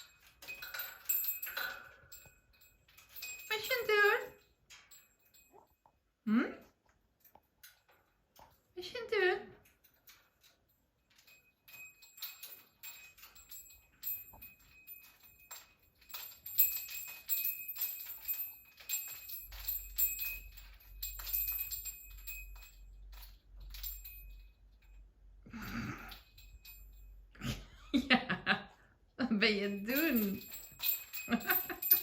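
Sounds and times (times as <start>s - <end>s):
bird toys clicking and rattling: 0.0s - 5.6s, 9.6s - 24.5s, 29.8s - 32.0s.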